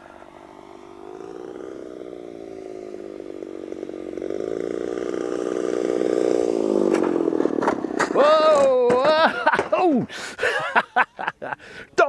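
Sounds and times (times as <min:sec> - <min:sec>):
model plane gas engine: 0:00.0 - 0:08.2.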